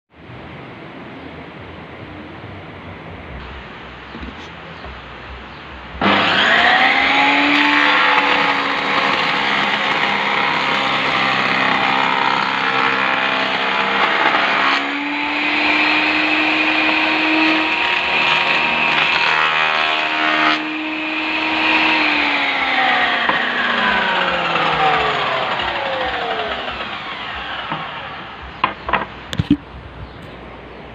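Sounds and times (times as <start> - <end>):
power tool motor whine: 6.0 - 28.7.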